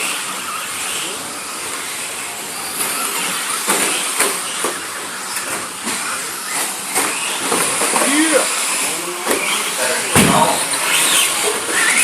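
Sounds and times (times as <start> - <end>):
radio-controlled cars whirring: 0.0 - 12.0
sharp knocks and clatters: 10.1 - 11.2.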